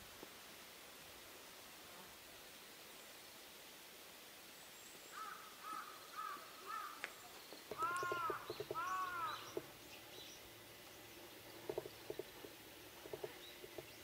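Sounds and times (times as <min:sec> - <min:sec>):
bird calling: 0:05.1 - 0:10.5.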